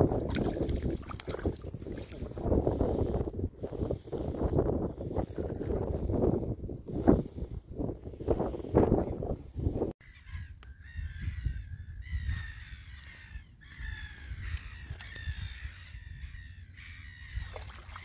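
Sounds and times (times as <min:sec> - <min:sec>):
birds calling harshly: 0:10.0 - 0:18.0.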